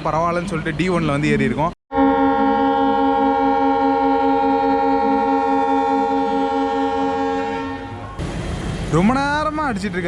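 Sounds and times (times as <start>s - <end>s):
locomotive air horn blast: 1.9s - 8.2s.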